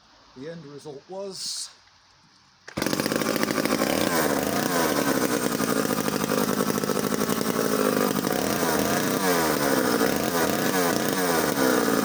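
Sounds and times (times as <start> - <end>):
chainsaw engine running: 2.7 - 12.0.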